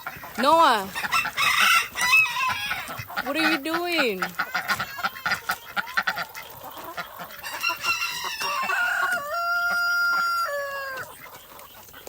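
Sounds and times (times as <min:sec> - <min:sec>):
rooster crowing: 0:01.0 - 0:02.9, 0:07.4 - 0:11.1.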